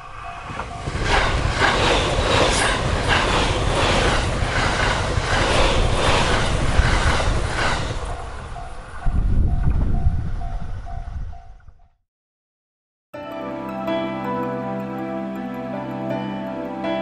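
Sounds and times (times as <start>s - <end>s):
level-crossing bell ringing: 0.0s - 1.5s
electric train passing at speed: 0.0s - 11.9s.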